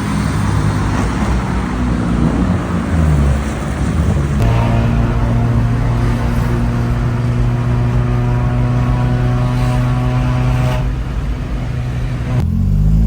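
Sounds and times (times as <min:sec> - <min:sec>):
car engine and exhaust droning: 0:00.0 - 0:13.0.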